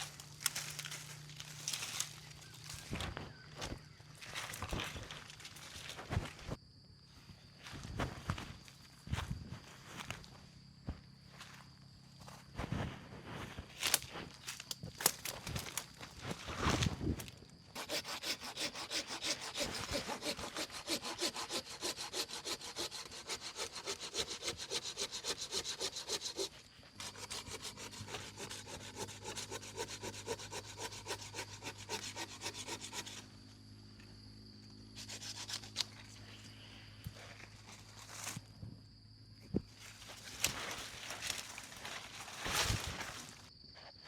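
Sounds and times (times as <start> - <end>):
hand saw cutting wood: 17.8 - 33.3, 35.0 - 36.1.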